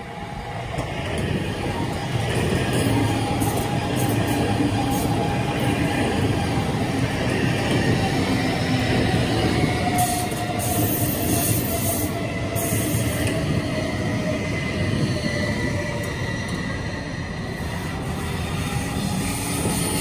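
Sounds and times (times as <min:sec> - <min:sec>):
train rumbling on rails: 0:00.0 - 0:20.0.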